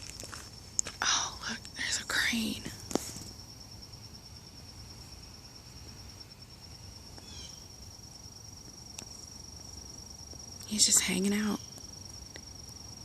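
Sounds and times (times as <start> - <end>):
insects trilling: 0.0 - 13.0
faint chirp: 6.3 - 7.8, 10.6 - 12.6.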